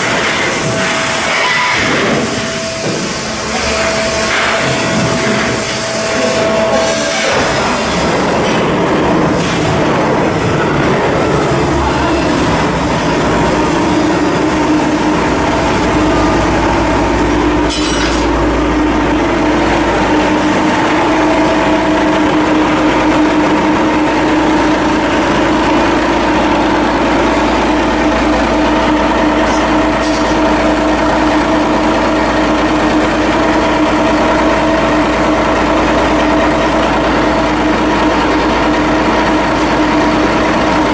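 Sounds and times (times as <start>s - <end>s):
heavy machinery humming: 0.0s - 40.9s
deep rumble: 8.6s - 25.1s.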